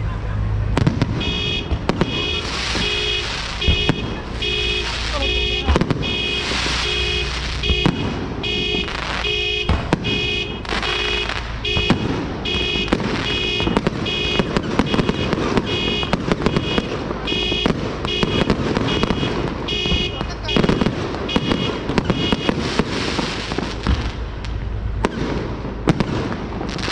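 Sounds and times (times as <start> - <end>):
fireworks cracks and bangs: 0.6 - 26.9
electronic alarm beeping: 1.3 - 22.5.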